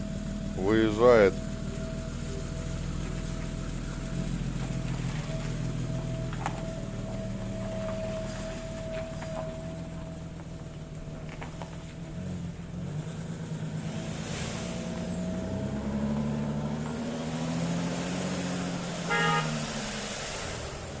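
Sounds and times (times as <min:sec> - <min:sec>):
car engine running: 0:00.0 - 0:21.0
car horn toot: 0:18.5 - 0:20.1.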